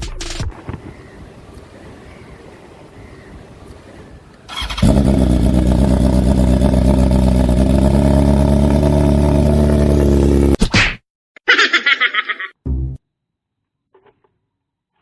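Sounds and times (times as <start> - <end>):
motorcycle engine running loud: 4.8 - 10.6.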